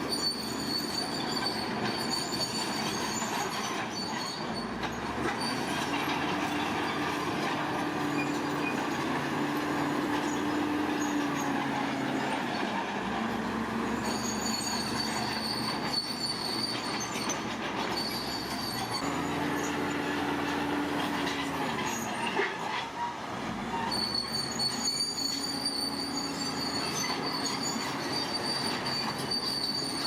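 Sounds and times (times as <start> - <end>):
crawler tracks squealing and grinding: 0.0 - 30.0
diesel engine running: 0.0 - 30.0.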